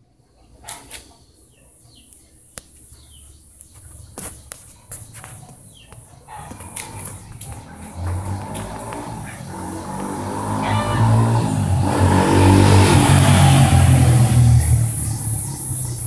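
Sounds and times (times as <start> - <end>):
bird chirps: 0.4 - 7.3.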